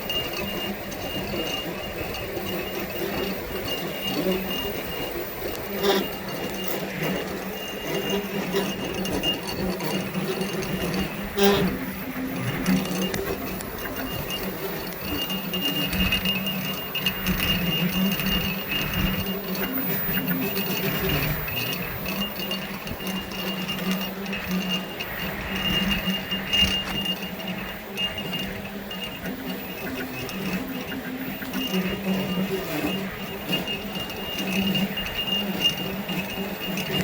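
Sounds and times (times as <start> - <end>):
machine whine: 0.0 - 37.0
milling machine motor hum: 0.0 - 37.0.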